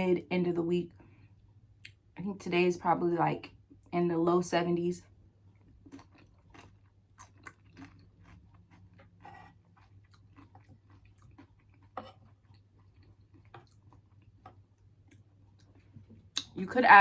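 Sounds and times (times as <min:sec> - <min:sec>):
person chewing food: 0:05.4 - 0:16.5.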